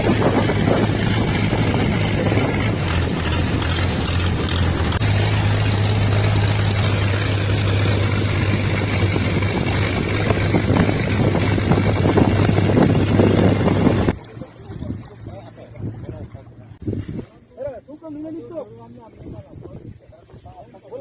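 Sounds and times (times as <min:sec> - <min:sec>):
loud rushing noise: 0:00.0 - 0:14.1
engine humming: 0:00.0 - 0:16.8.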